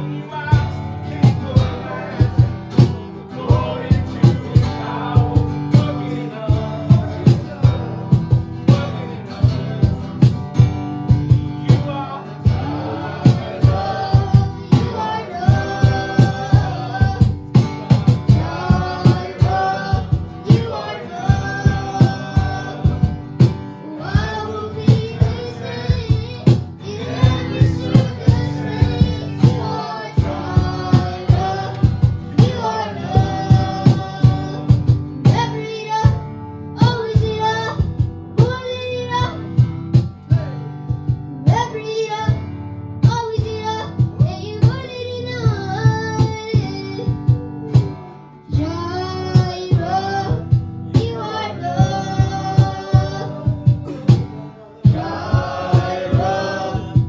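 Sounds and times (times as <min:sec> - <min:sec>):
worship band playing: 0:00.0 - 0:38.6, 0:49.4 - 0:57.0
voices singing: 0:00.0 - 0:40.6, 0:43.1 - 0:57.0
steady drum beat: 0:00.6 - 0:41.7, 0:49.4 - 0:57.0.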